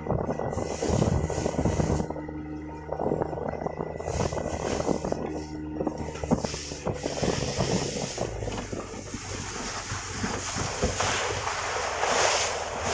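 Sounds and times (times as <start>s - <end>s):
motorboat engine running: 0.0s - 12.9s
wind on microphone: 0.0s - 12.9s
water rushing past hull: 4.0s - 12.9s.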